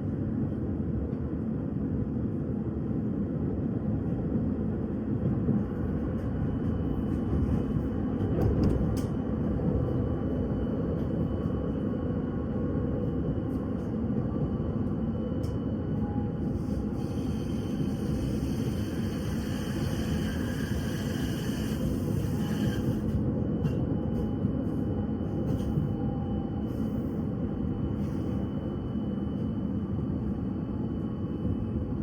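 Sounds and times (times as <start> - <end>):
tram wheels rumbling on rails: 4.8 - 11.7.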